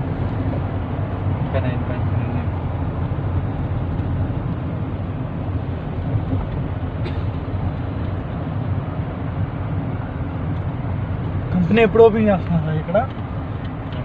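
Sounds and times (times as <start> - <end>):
vehicle engine and tyre rumble: 0.0 - 14.0.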